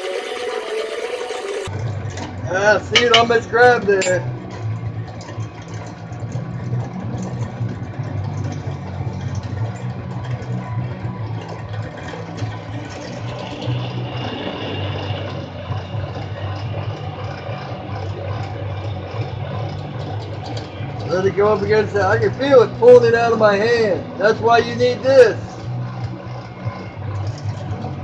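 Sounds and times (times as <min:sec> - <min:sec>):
drill press running: 0:00.0 - 0:01.7, 0:11.4 - 0:24.7.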